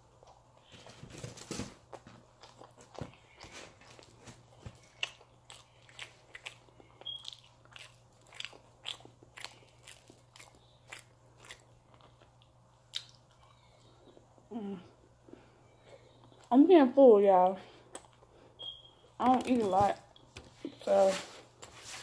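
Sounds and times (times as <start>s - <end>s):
chewing with wet crunches: 2.3s - 14.2s.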